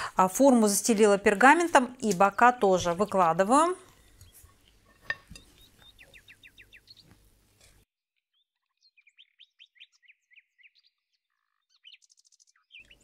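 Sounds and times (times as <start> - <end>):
small bird chirping: 3.9 - 7.3, 8.3 - 13.0.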